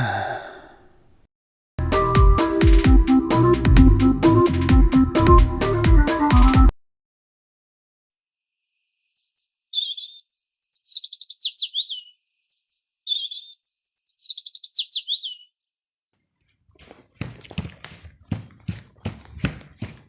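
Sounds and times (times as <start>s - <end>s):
small bird singing: 9.0s - 15.6s.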